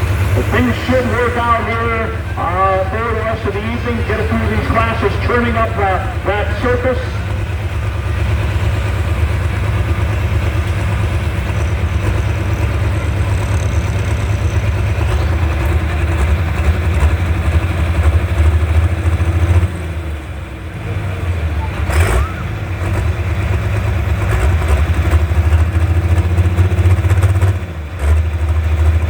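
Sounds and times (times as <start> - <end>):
tractor engine rumbling: 0.0 - 29.0.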